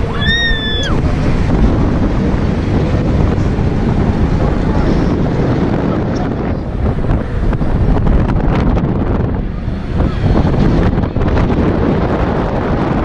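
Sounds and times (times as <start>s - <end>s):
heavy wind on microphone: 0.0s - 13.0s
high-pitched shriek: 0.1s - 1.0s.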